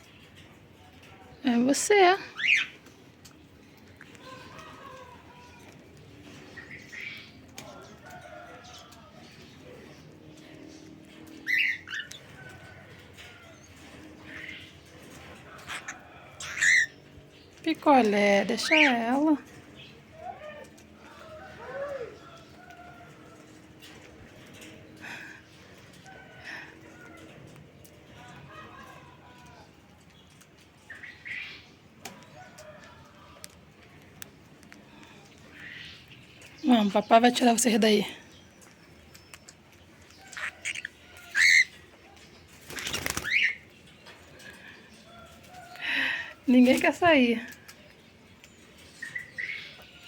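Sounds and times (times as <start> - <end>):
cockatiels calling: 2.0 - 2.8, 11.4 - 12.3, 15.4 - 17.0, 40.2 - 41.8.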